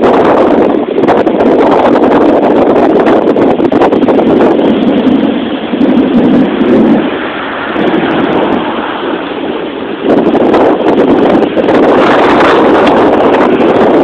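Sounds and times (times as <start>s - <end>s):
gusty wind buffeting microphone: 0.0s - 14.0s.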